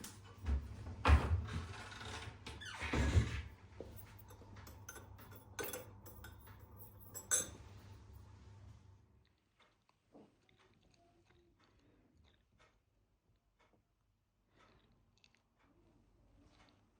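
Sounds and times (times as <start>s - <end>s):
dishes and cutlery clinking: 4.0s - 7.8s.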